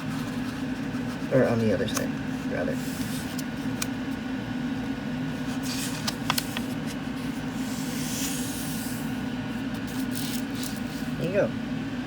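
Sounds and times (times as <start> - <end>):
steady low hum: 0.0 - 12.0
paper sliding rustle: 5.4 - 9.1.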